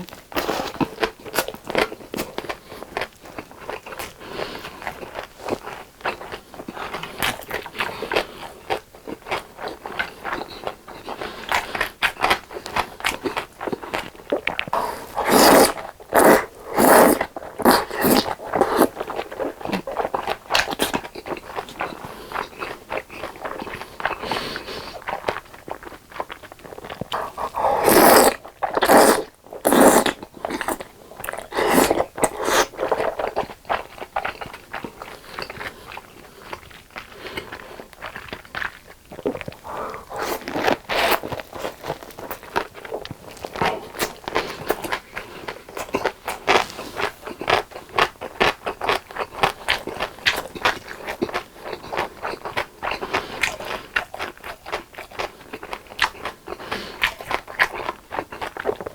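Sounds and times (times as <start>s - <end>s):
person biting and chewing food: 11.5s - 24.4s, 25.1s - 58.9s.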